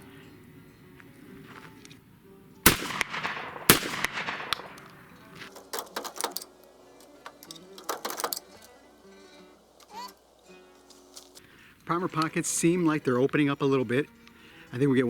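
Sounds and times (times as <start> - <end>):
shotgun shots with echo: 2.7 - 5.4
sharp clicks: 2.7 - 8.8.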